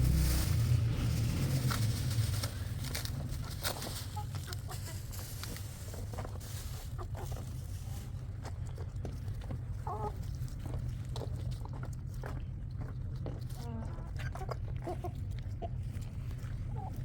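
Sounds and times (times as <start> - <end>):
low rumble: 0.0 - 6.8
chickens clucking: 2.2 - 11.9, 12.7 - 17.0.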